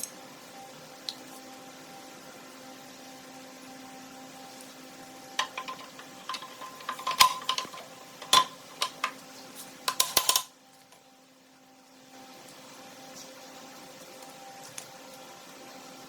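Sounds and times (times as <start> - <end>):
steady low hum: 0.0 - 16.0
small metal parts clinking: 5.4 - 9.2, 9.9 - 10.5.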